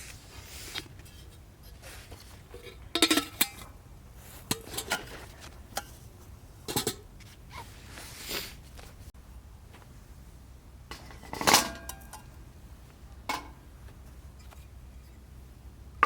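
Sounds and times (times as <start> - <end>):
cookware clinking and knocking: 3.0 - 3.7.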